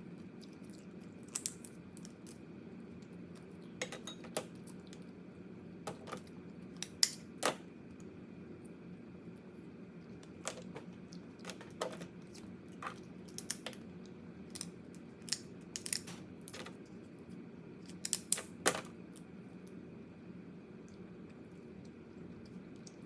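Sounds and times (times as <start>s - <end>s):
crab shell cracking while eating: 0.2s - 2.4s, 10.2s - 16.2s, 17.9s - 19.3s.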